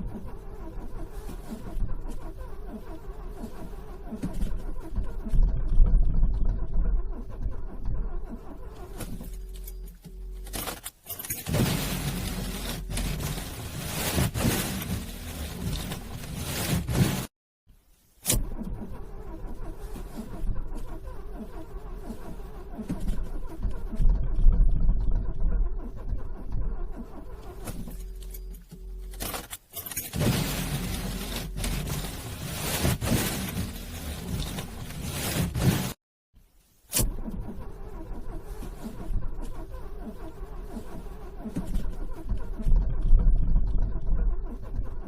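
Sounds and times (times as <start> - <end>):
starter motor cranking car engine: 0.0 - 10.0, 18.3 - 36.0, 37.0 - 45.0.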